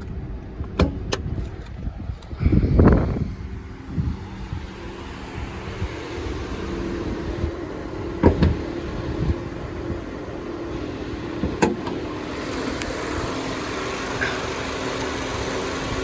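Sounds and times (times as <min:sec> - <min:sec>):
car engine idling: 0:00.0 - 0:16.0
sharp clunks: 0:00.7 - 0:01.3, 0:08.2 - 0:08.6.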